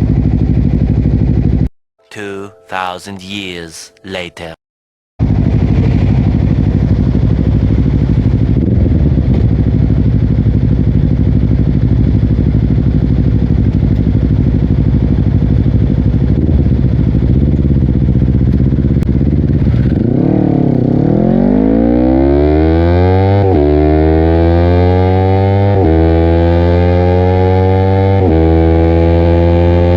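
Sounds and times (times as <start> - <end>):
motorcycle engine running: 0.0 - 1.6, 5.2 - 21.2.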